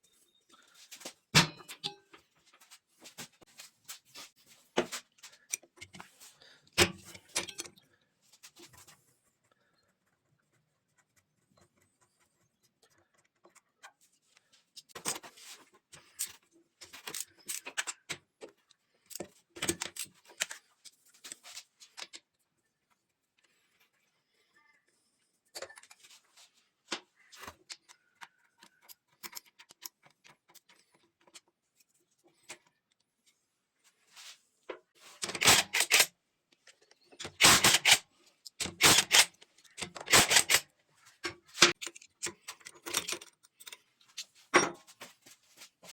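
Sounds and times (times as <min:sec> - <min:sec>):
metal tools clinking: 0:06.8 - 0:07.8, 0:41.6 - 0:44.9
loud rapid clicking: 0:38.6 - 0:39.3, 0:40.0 - 0:40.6.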